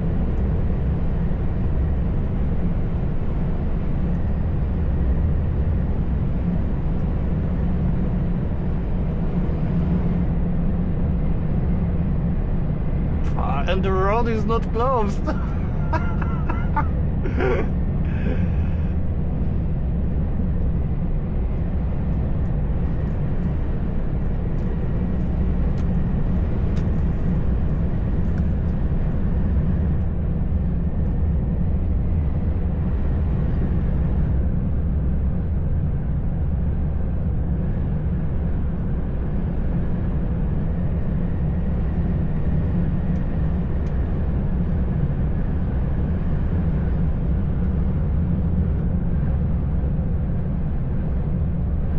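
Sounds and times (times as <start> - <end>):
heavy truck engine drone: 0.0 - 35.8.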